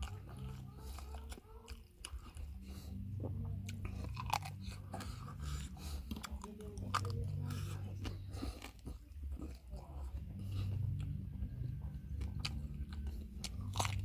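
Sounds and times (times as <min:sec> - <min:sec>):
low hum: 0:00.0 - 0:14.0
person chewing food: 0:00.0 - 0:14.0
teeth clicks: 0:03.6 - 0:09.8, 0:10.7 - 0:14.0.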